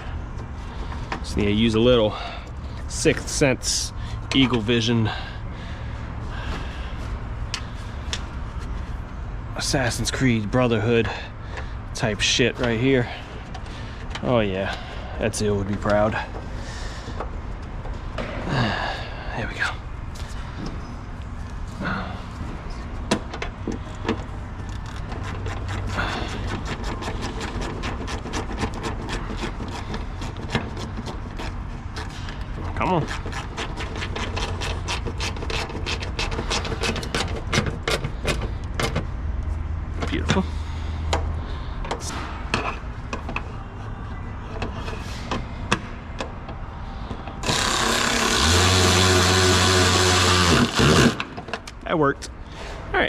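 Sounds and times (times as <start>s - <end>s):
steady low hum: 0.0s - 53.0s
electric motor whirring: 47.4s - 51.3s.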